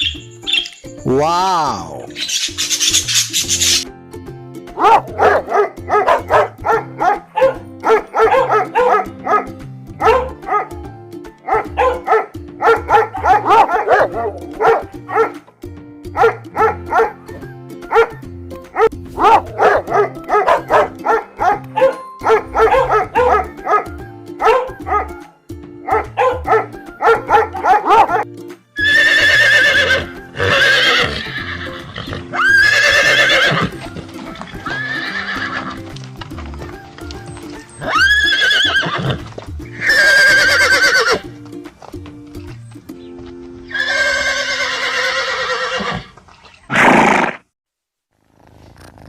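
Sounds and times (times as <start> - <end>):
music with bass line: 3.1 - 28.7
dog barking: 4.8 - 15.4, 16.2 - 17.2, 17.9 - 28.3.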